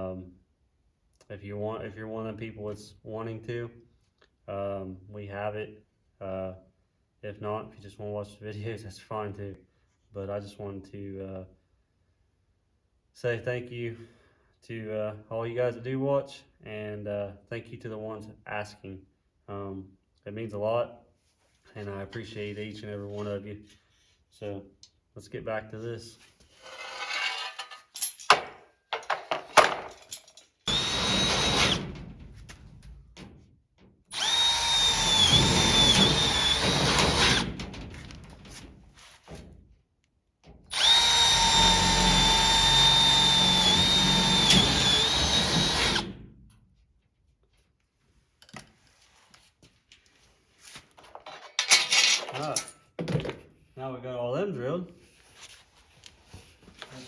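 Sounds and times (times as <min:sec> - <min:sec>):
power drill boring holes: 0:30.7 - 0:32.0, 0:34.1 - 0:37.6, 0:40.7 - 0:46.2.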